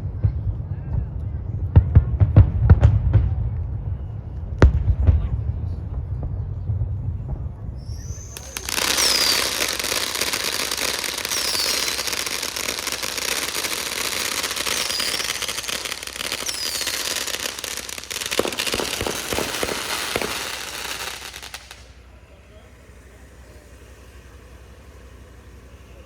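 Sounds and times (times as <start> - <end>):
fireworks bangs: 0.1 - 26.0
fireworks crackling: 6.0 - 26.0
falling whistles: 7.8 - 26.0.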